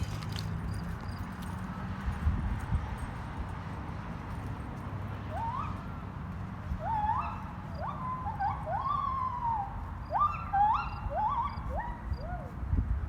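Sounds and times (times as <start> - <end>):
animal calls sweeping upward: 6.8 - 12.6.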